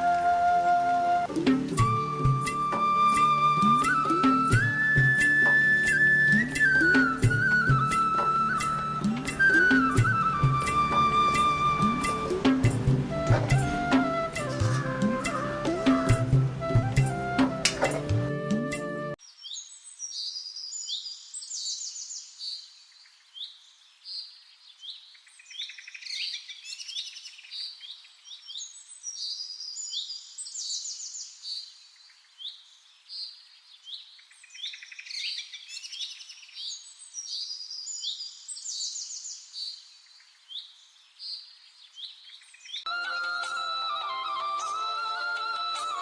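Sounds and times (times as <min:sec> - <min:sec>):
small birds chirping: 0:19.2 - 0:42.9.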